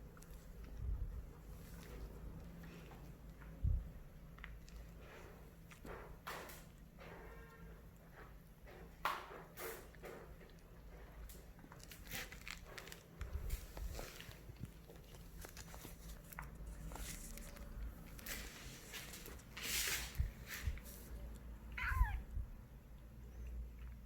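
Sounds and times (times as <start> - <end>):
kitten mewing: 21.7 - 22.4.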